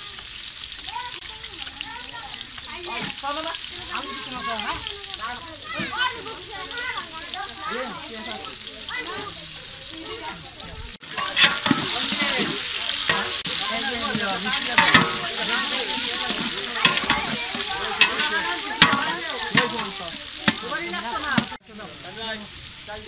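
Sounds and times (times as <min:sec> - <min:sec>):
onions sizzling in hot oil: 0:00.0 - 0:23.0
metal ladle scraping: 0:11.0 - 0:21.6.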